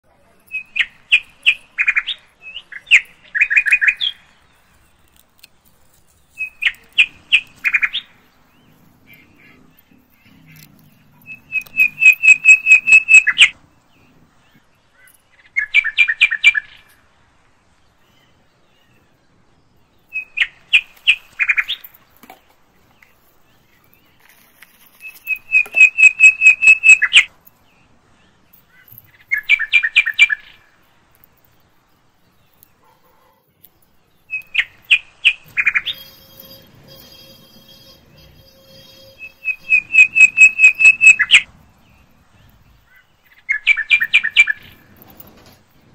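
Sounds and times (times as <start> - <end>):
bird chirping and trilling: 0.3 - 5.0, 5.6 - 14.1, 19.8 - 22.0, 24.9 - 27.3, 28.2 - 30.8, 33.7 - 45.1.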